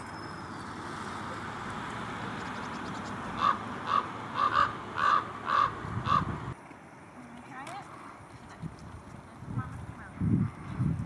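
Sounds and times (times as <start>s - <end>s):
bird calling: 2.3s - 6.4s.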